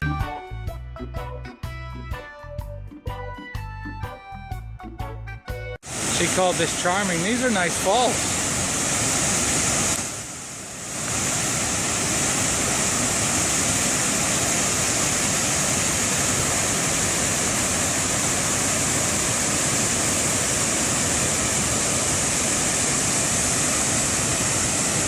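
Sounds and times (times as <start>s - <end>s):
waterfall rushing: 5.8s - 25.0s.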